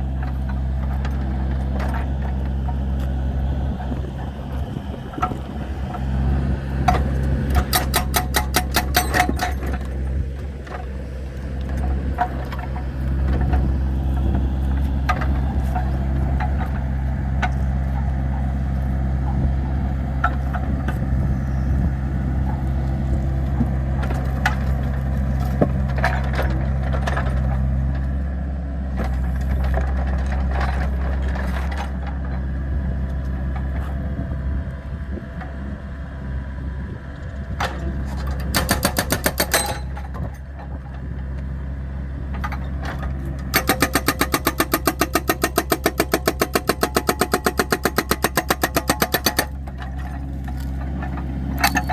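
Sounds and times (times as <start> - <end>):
diesel engine running: 0.0 - 51.9
fast rattling clatter: 38.4 - 40.0, 43.5 - 49.6
sharp knocks: 38.5 - 39.9, 43.6 - 49.6.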